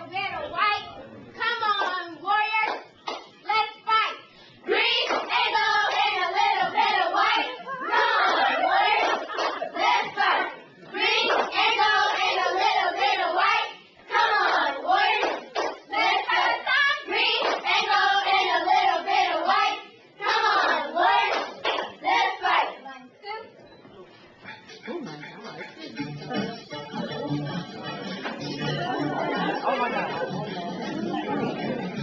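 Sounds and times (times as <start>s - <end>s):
hand claps: 2.6s - 3.4s, 5.0s - 5.3s, 15.1s - 15.8s, 21.3s - 22.0s, 28.2s - 28.6s.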